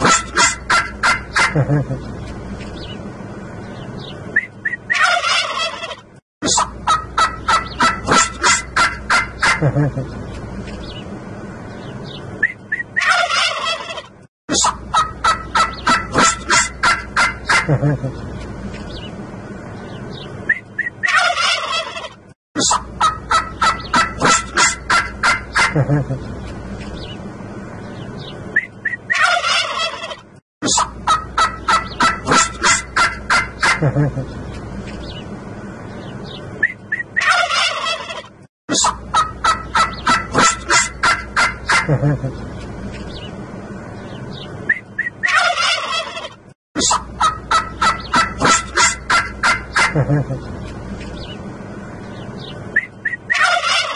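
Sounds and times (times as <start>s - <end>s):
turkeys gobbling: 0.0s - 2.1s, 4.6s - 10.1s, 12.4s - 18.2s, 20.5s - 26.2s, 28.6s - 34.3s, 36.6s - 42.4s, 44.7s - 50.5s, 52.8s - 53.9s.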